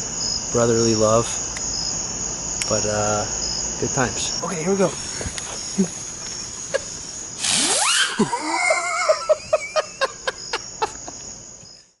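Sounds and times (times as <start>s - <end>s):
crickets chirping: 0.0s - 12.0s
firework pops and crackles: 7.4s - 7.8s
firework whistling: 7.4s - 9.2s.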